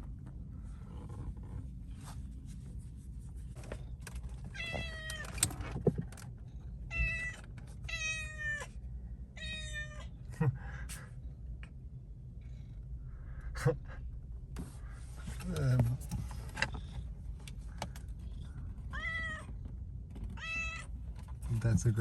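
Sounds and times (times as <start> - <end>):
steady low rumble: 0.0 - 22.0
cat meowing: 4.5 - 5.4, 6.9 - 8.7, 9.4 - 10.2, 18.5 - 19.5, 20.4 - 20.9.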